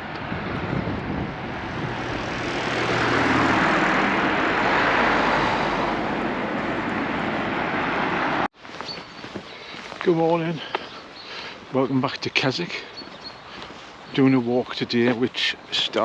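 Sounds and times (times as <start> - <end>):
vehicle passing on road: 0.0 - 9.3.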